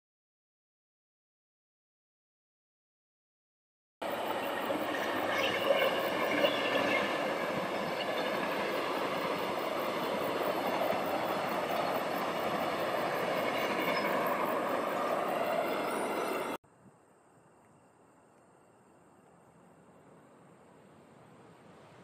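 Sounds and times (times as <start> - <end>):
passenger train rushing past: 4.0 - 16.6
faint high whining tones: 4.0 - 22.0.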